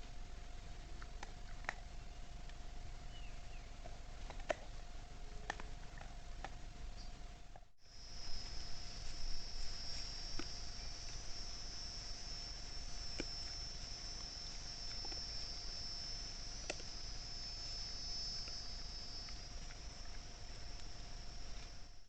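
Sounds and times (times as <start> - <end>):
insect chorus trilling: 7.8 - 22.0.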